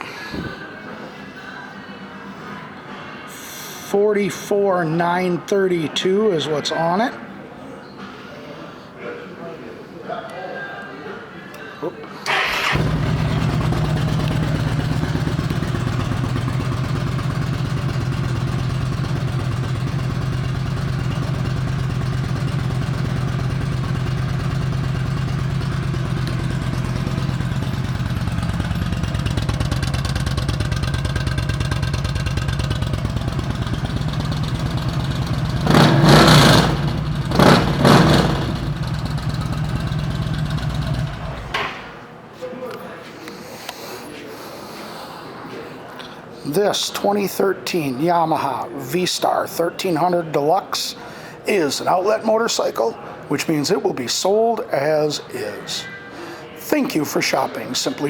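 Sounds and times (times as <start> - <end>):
motorcycle engine idling: 12.3 - 41.9.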